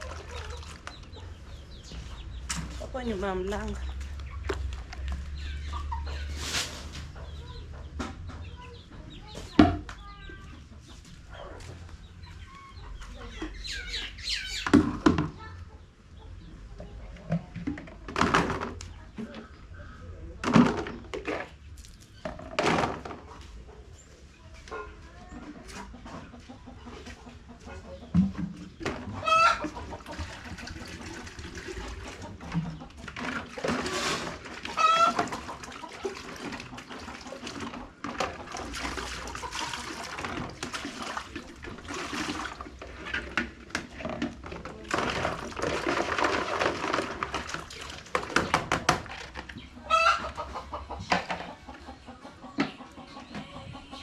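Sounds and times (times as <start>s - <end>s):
chickens clucking: 0.0s - 54.0s
rustling noise: 6.2s - 7.1s.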